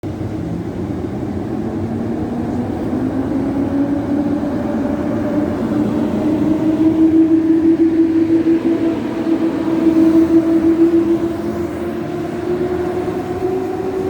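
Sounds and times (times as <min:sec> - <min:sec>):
train low rumble: 0:00.0 - 0:14.0
traction motors whining: 0:01.2 - 0:14.0.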